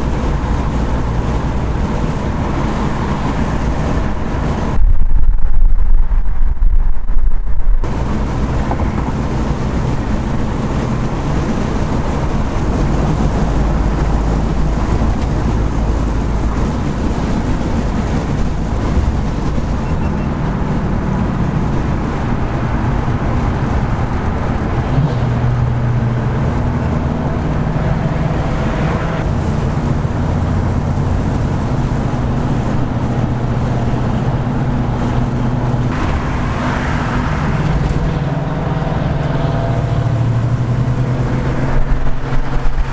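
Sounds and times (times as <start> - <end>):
car engine drone: 0.0 - 42.9
road and wind noise: 0.0 - 42.9.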